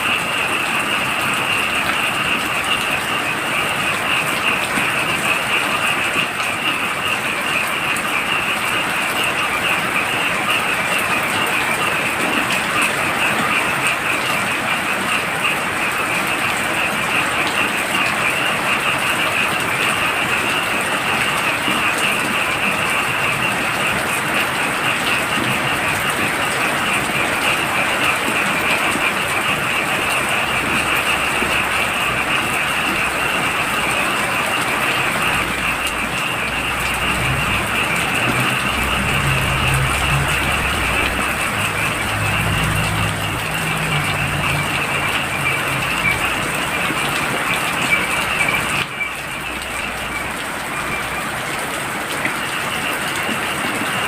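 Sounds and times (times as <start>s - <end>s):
frogs trilling: 0.0s - 54.0s
heavy rain falling: 0.0s - 54.0s
low pulsing drone: 35.0s - 47.0s.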